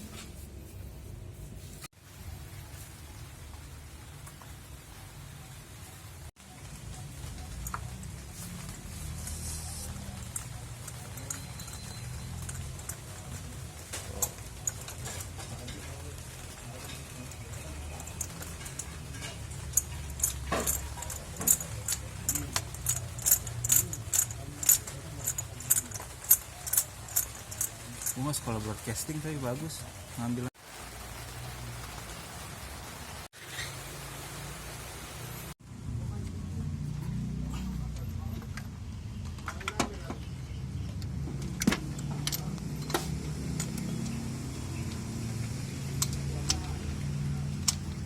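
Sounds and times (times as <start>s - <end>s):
small metal objects clinking: 6.9s - 29.2s.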